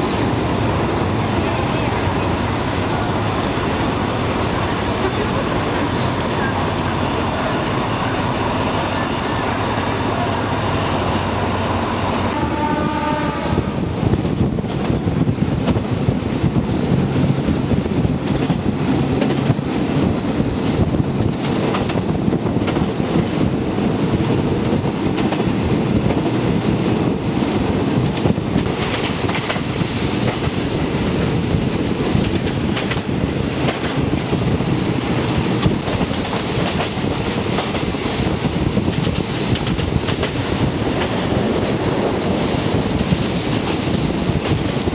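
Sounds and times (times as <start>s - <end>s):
train rumbling: 0.0s - 44.9s
wheels clicking over rail joints: 0.2s - 12.4s, 16.9s - 44.9s
train horn blast: 12.2s - 13.9s.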